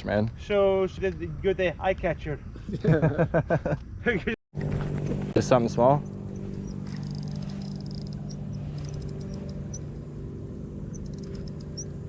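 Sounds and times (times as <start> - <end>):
low mechanical hum: 4.6 - 12.0.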